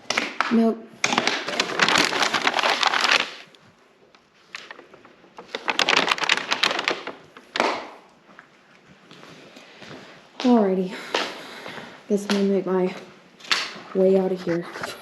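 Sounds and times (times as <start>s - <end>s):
debris crackling and scraping: 1.0s - 3.6s, 4.5s - 7.7s.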